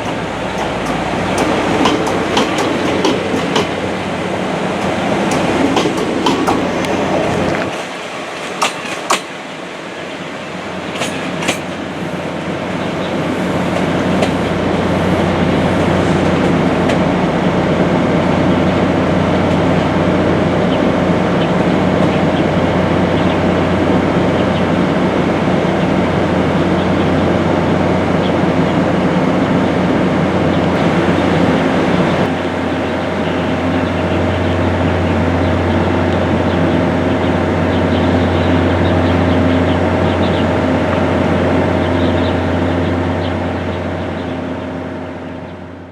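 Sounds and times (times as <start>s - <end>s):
train rumble and wheel clatter: 0.0s - 45.9s.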